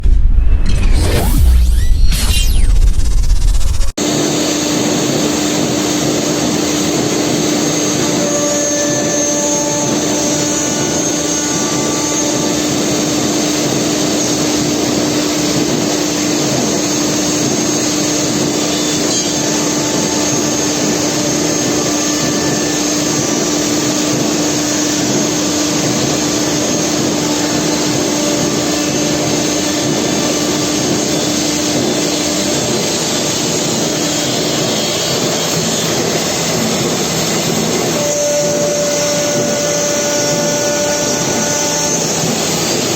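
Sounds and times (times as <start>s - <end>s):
router machine whine: 0.0s - 42.9s
rushing machine noise: 0.0s - 42.9s.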